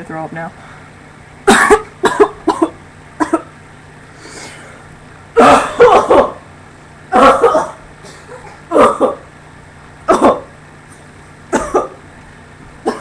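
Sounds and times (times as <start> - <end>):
person coughing hard: 1.4 - 3.5, 5.4 - 6.4, 7.1 - 9.3, 10.1 - 10.6, 11.5 - 12.0.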